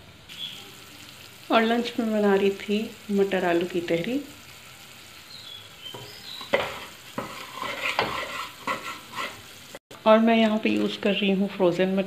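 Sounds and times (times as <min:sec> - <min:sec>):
masala sizzling in oil: 0:00.0 - 0:12.0
spoon knocking against pot: 0:05.9 - 0:07.4
wooden spoon scraping pot: 0:05.9 - 0:09.6.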